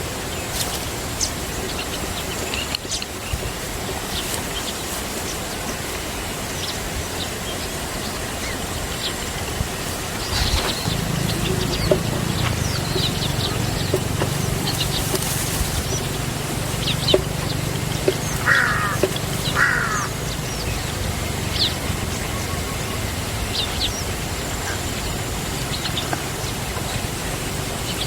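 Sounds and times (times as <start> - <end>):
birds chirping: 0.2 - 28.0
low rumble: 10.2 - 18.5
bird trills: 10.2 - 25.0.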